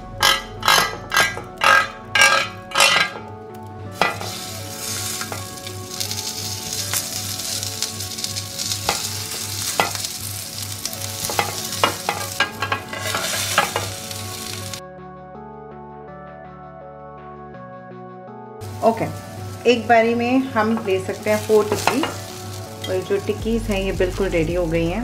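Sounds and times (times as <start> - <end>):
patties sizzling in hot oil: 3.9 - 14.8, 18.6 - 25.0.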